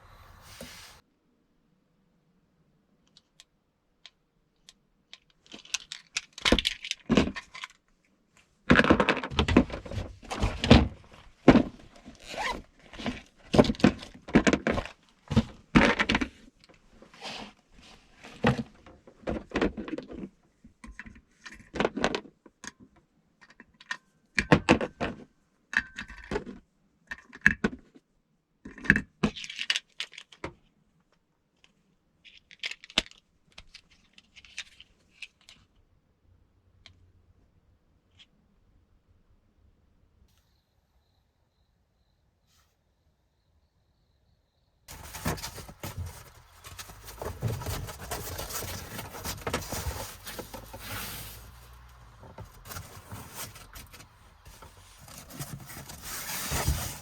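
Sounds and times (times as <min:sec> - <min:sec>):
objects knocking and scraping: 0:08.7 - 0:16.4, 0:44.9 - 0:57.0.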